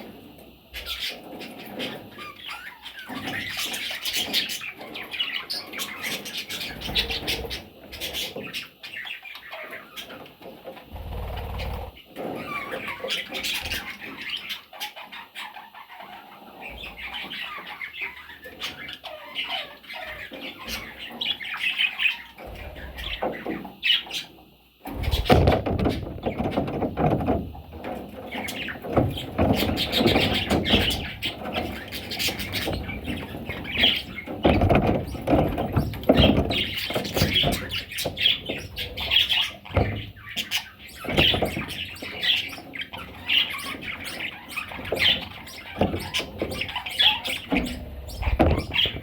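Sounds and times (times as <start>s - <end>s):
budgerigars chirping and chattering: 0.0s - 49.0s
wings fluttering: 10.9s - 12.9s, 24.8s - 27.6s.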